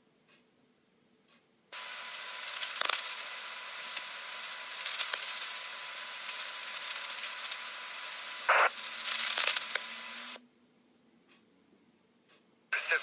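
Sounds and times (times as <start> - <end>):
crackling clicks: 1.3 - 10.4, 12.3 - 13.0
radio static hiss: 1.7 - 10.4, 12.7 - 13.0.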